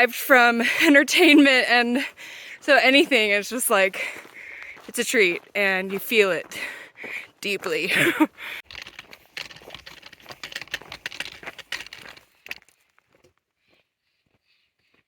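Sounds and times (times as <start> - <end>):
crinkly rustling: 8.6 - 12.8.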